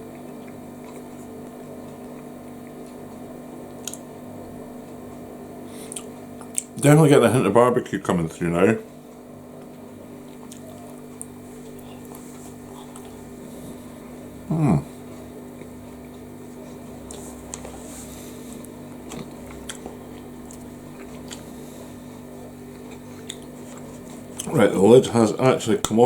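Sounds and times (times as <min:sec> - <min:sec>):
man chewing food: 0:00.0 - 0:06.8, 0:08.8 - 0:25.4
steady low hum: 0:00.0 - 0:26.0
faint mouth clicks: 0:03.8 - 0:04.0, 0:05.9 - 0:06.7.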